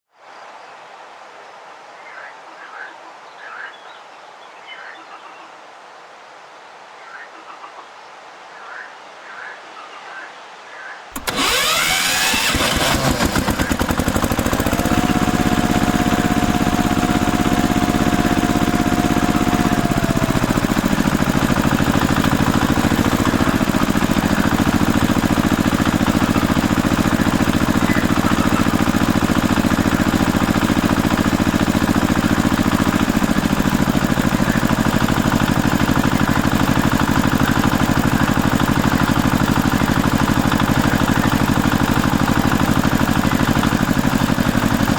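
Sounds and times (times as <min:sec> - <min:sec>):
engine starting and idling: 0:11.2 - 0:44.9.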